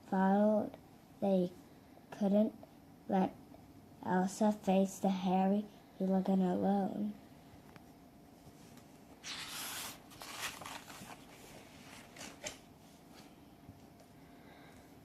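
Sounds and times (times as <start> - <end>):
book page turning: 8.8 - 12.7.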